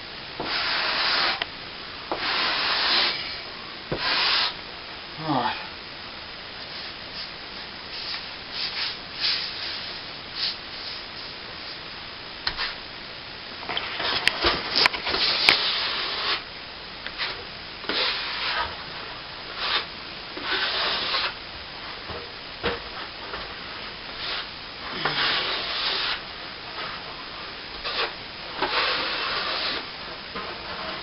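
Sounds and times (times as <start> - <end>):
steel trowel scraping cement: 27.8 - 29.8.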